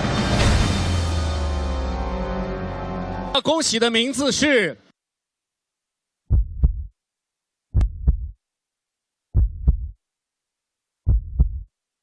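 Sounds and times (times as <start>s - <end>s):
heartbeat double thumps: 6.3s - 6.9s, 7.7s - 8.4s, 9.3s - 10.0s, 11.0s - 11.7s.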